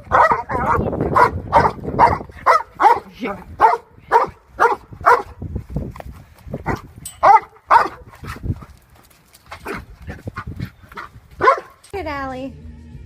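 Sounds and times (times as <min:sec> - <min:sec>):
dog barking: 0:00.0 - 0:05.4, 0:06.6 - 0:08.4, 0:11.0 - 0:11.8.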